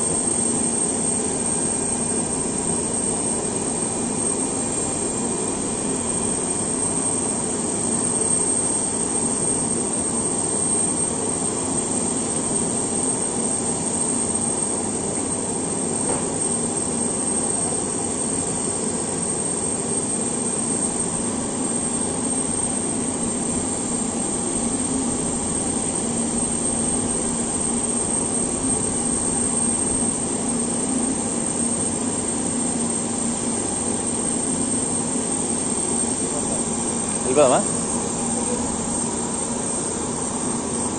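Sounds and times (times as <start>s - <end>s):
aircraft turbine whining: 21.4s - 40.9s.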